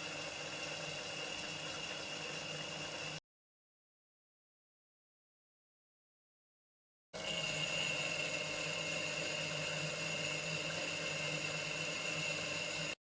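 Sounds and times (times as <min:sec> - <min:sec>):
lathe humming with high whine: 0:00.0 - 0:03.2, 0:07.2 - 0:13.0.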